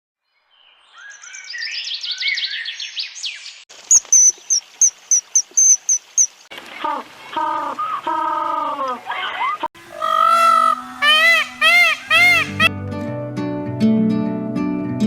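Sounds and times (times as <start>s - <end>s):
bird song chirps and trills: 0.2s - 6.5s, 10.0s - 12.7s
repeated high bird note: 9.8s - 12.7s.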